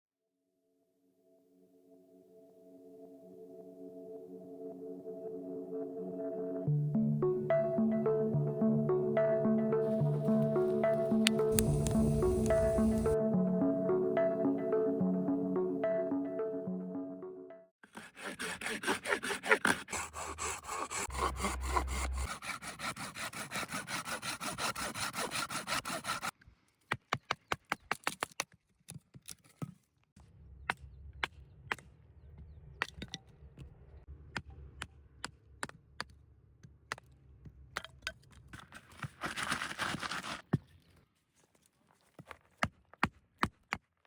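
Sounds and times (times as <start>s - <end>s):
hand saw cutting wood: 17.8s - 26.4s.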